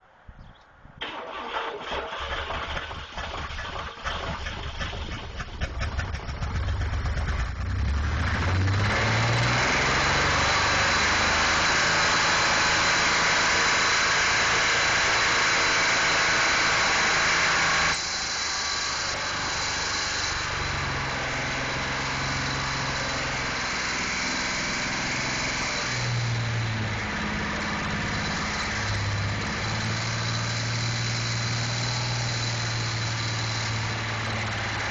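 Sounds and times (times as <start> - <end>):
engine cranking and running: 1.0 - 34.9.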